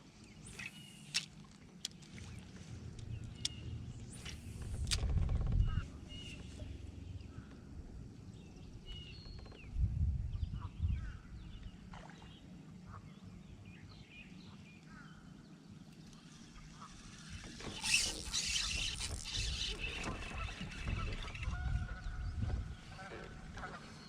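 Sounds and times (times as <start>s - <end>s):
kayak bumping rumbles: 18.6s - 24.0s.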